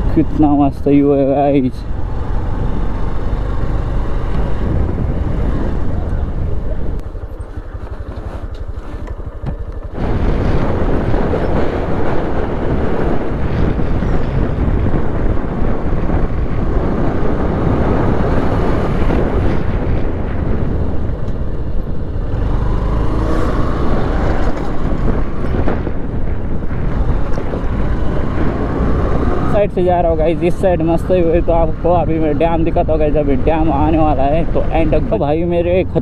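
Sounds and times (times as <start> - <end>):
wind rushing on microphone: 0.0 - 36.0
motorcycle engine running: 1.8 - 29.5.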